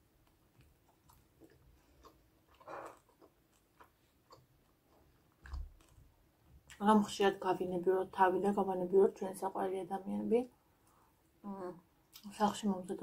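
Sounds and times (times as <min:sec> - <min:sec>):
person chewing food: 0:00.1 - 0:06.8
crunch: 0:00.2 - 0:06.0.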